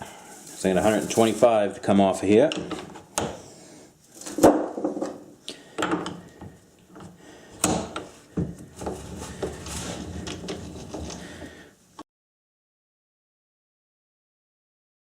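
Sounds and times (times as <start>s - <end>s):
metal tooling clunks and clicks: 2.5s - 3.4s, 4.2s - 9.6s.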